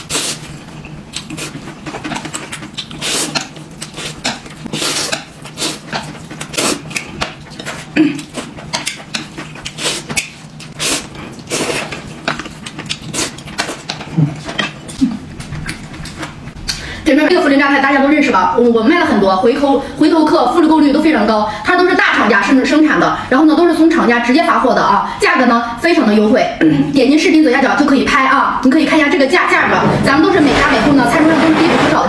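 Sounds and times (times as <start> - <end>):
smacking and chewing: 0.1 - 16.8.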